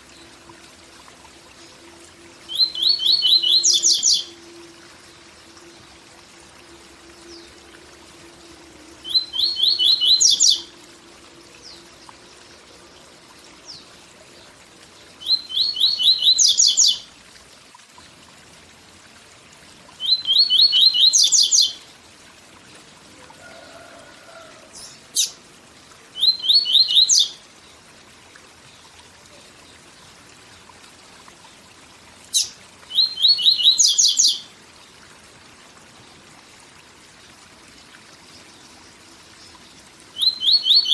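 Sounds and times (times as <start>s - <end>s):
faint waterfall hiss: 0.0s - 40.9s
bird singing trilling song: 2.4s - 4.5s, 9.0s - 10.7s, 15.2s - 17.1s, 20.0s - 21.8s, 26.2s - 27.4s, 32.3s - 34.5s, 39.4s - 40.9s.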